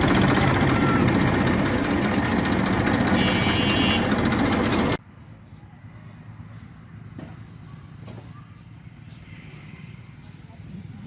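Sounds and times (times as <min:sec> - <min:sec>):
heavy vehicle engine clatter: 0:00.0 - 0:05.0.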